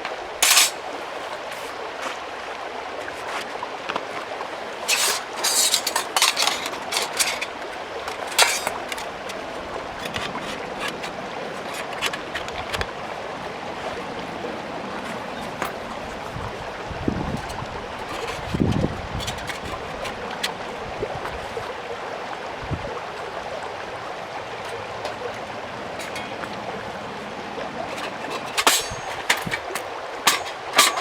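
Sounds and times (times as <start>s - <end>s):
rustling and handling noise: 0.0s - 2.2s, 4.1s - 14.1s, 24.3s - 31.0s
stream water rushing: 0.0s - 31.0s.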